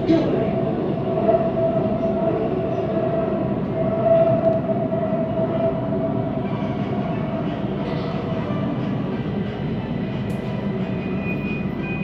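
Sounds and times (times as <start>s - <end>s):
mid-pitched train whine: 0.0s - 12.0s.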